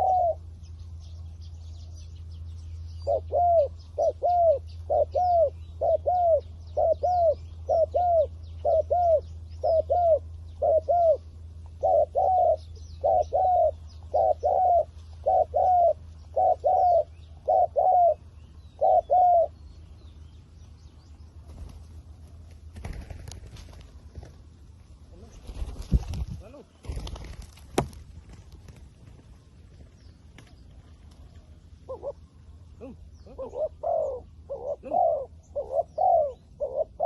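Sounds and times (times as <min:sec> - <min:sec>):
dove cooing: 0:00.0 - 0:00.6, 0:03.0 - 0:19.7, 0:30.9 - 0:37.0
small birds chirping: 0:00.0 - 0:37.0
steady low hum: 0:00.0 - 0:37.0.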